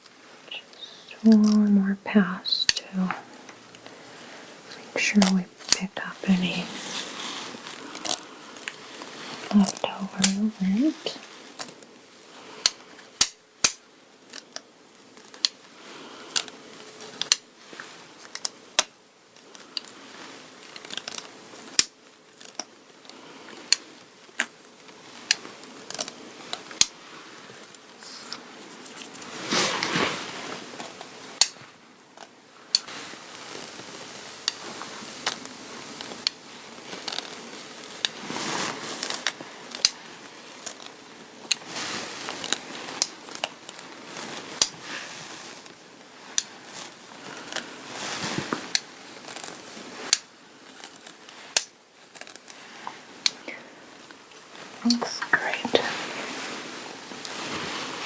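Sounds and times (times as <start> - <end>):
rustling: 3.1 - 13.1, 22.5 - 58.0
lint roller crackling on fabric: 6.6 - 11.8, 23.1 - 31.7, 32.8 - 53.4.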